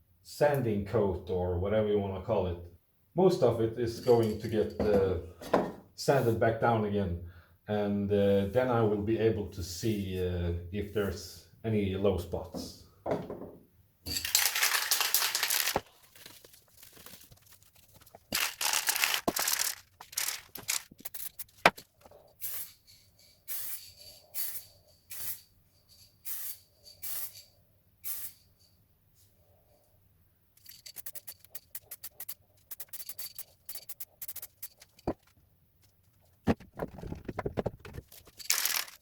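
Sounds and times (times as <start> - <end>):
spray paint hissing: 22.4 - 25.5, 26.2 - 28.5, 30.6 - 35.2.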